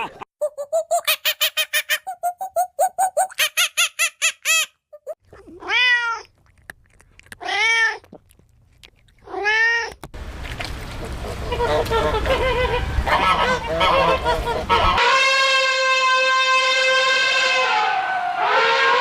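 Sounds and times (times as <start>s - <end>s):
peafowl calling: 11.1s - 15.1s.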